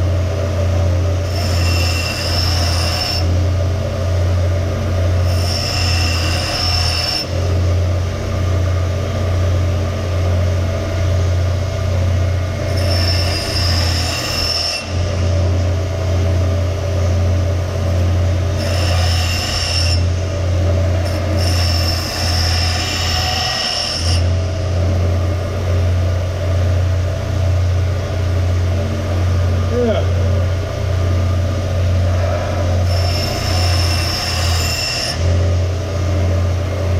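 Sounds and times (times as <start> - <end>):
power grinder running: 0.6 - 10.8, 11.9 - 26.5, 27.8 - 36.9
metal rasping against grinder: 1.1 - 3.4, 4.6 - 7.6, 12.4 - 15.7, 18.2 - 24.4, 32.0 - 35.6.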